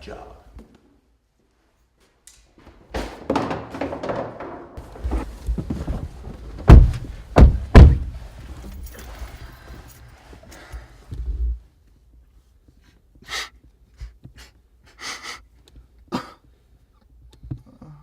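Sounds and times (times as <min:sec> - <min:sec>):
low thump: 0:06.6 - 0:08.2
short breaths: 0:09.3 - 0:11.1, 0:12.8 - 0:15.5.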